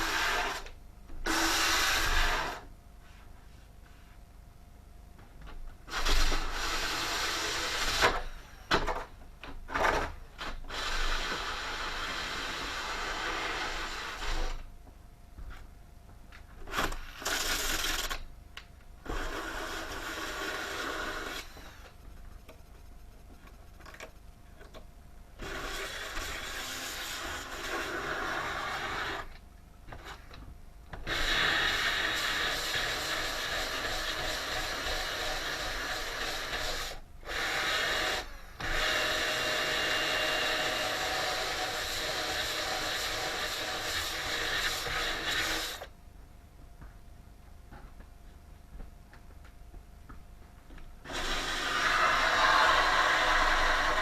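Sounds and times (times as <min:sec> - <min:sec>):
power tool running: 0:51.1 - 0:54.0.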